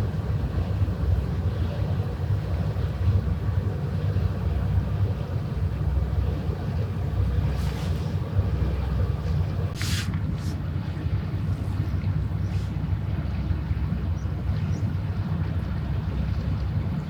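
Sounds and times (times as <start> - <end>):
boat engine rumbling: 0.0 - 17.0
brief hiss: 9.7 - 10.6.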